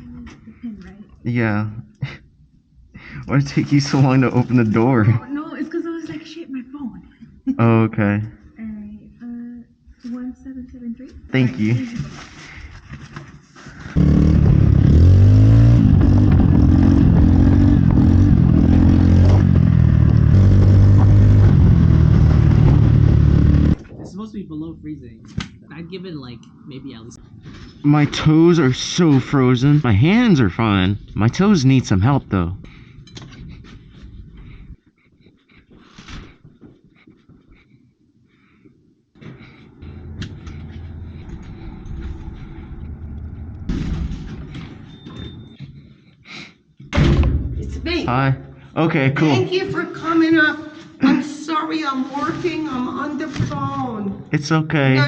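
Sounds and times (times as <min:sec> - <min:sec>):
person breathing hard: 0:02.9 - 0:03.3, 0:32.6 - 0:43.6, 0:45.7 - 0:46.8
vehicle engine revving: 0:14.0 - 0:23.9, 0:39.4 - 0:44.6
low rumble: 0:14.0 - 0:25.7, 0:39.3 - 0:45.0
rushing noise: 0:39.7 - 0:44.9.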